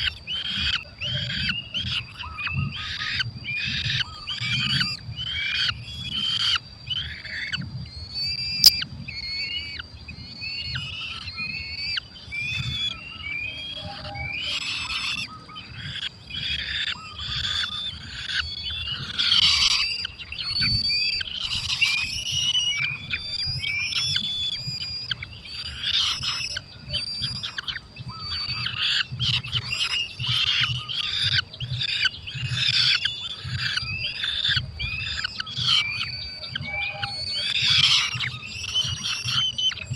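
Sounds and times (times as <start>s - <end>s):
falcons calling: 11.0s - 39.9s.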